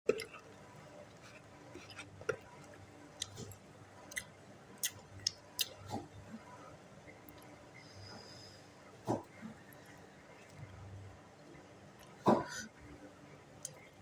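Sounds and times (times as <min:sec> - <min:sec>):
close-miked chewing: 0:00.1 - 0:06.1.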